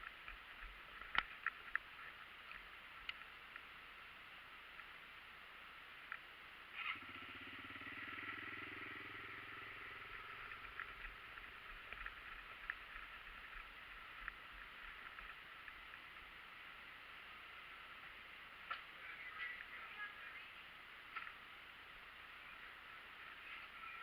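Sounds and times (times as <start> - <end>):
distant dirt bike engine: 6.7 - 16.3.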